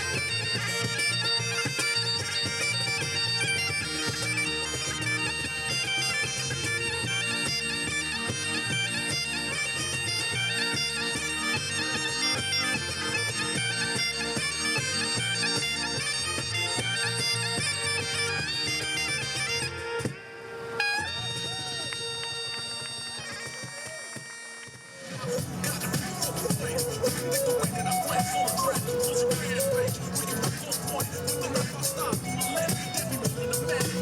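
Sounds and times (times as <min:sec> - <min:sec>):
bagpipes playing a tune: 0:00.0 - 0:24.7, 0:25.3 - 0:34.0.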